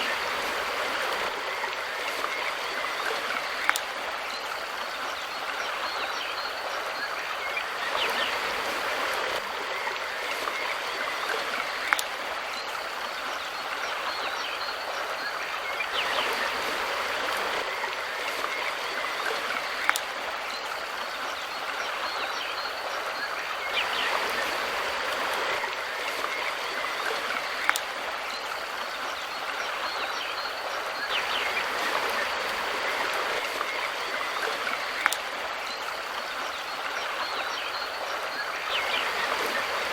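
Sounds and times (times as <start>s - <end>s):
river water rushing: 0.0s - 39.9s
sharp tick: 35.0s - 35.2s.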